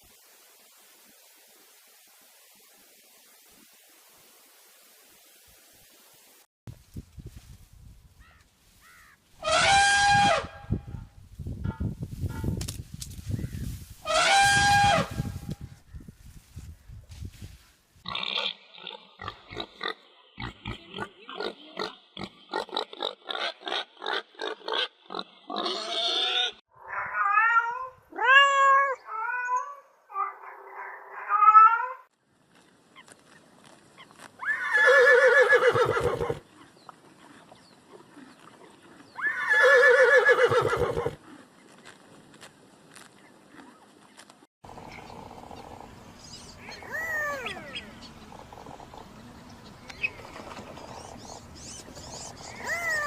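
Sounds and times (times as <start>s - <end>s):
pigs squealing: 9.4s - 10.5s, 44.9s - 49.0s, 50.8s - 53.0s
pigs grunting: 50.3s - 53.0s.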